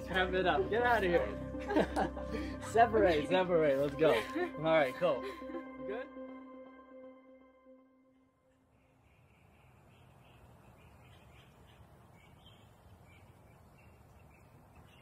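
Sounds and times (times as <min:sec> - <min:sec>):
bird chirping: 0:08.5 - 0:15.0.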